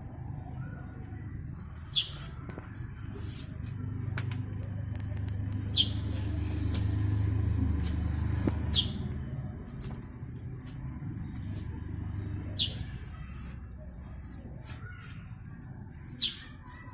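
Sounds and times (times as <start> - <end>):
vehicle engine rumble passing: 0.0 - 14.6
small bird chirping: 1.0 - 2.5, 5.6 - 6.6, 8.6 - 9.1, 12.4 - 13.6, 15.9 - 16.9.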